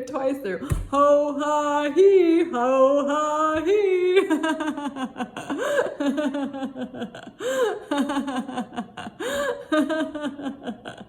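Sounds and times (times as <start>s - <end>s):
woman laughing: 3.1s - 11.0s.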